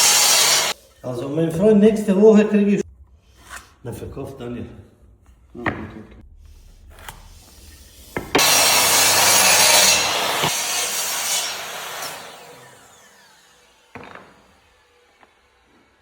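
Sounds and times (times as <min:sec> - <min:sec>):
power saw cutting wood: 0:00.0 - 0:00.8, 0:07.5 - 0:16.0.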